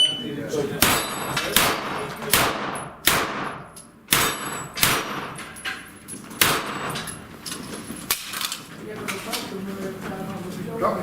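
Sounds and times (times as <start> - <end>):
loud gunshots with echo: 0.8 - 5.4, 6.4 - 7.1
faint distant gunshots: 1.6 - 5.4.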